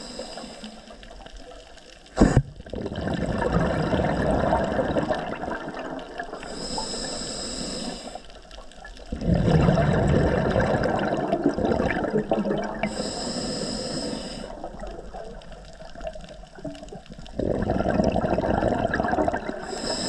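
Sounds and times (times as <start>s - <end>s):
regulator inhalation hiss: 0.0s - 1.0s, 6.4s - 8.4s, 12.8s - 14.6s, 19.6s - 20.0s
exhaled bubbles rushing: 2.3s - 6.5s, 9.0s - 13.0s, 14.5s - 19.8s.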